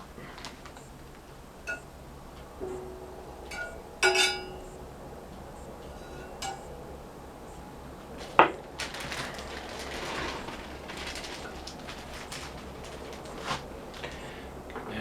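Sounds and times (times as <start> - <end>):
rustling and scraping: 0.0 - 15.0
metallic cookware clink: 3.4 - 4.8, 5.9 - 6.8.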